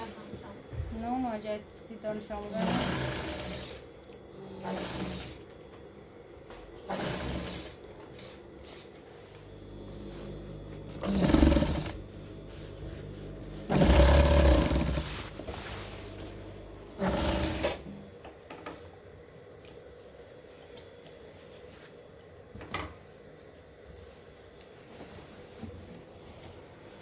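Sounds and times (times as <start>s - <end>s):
sewing machine stitching: 2.4s - 5.5s, 6.7s - 8.8s, 9.8s - 18.0s
motor hum: 6.8s - 18.1s.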